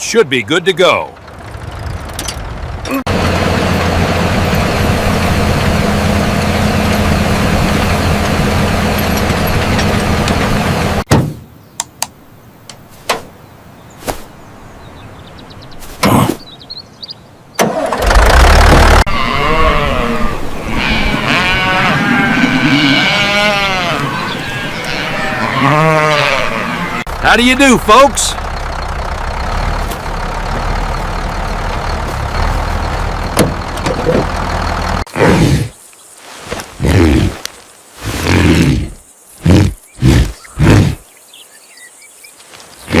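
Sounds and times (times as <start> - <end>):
tractor engine running: 0.0 - 11.1, 17.6 - 19.2, 27.0 - 35.1.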